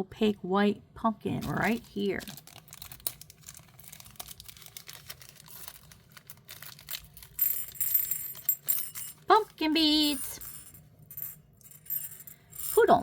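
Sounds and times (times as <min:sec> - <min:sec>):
packet crinkling: 0:01.4 - 0:07.8
glass beads clicking and rattling: 0:05.2 - 0:13.0.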